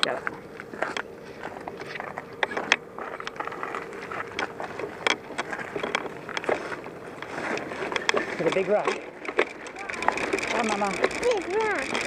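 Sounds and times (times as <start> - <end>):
bicycle metallic clicks and rattles: 0.7 - 12.0
bicycle ratchet ticking: 5.0 - 12.0.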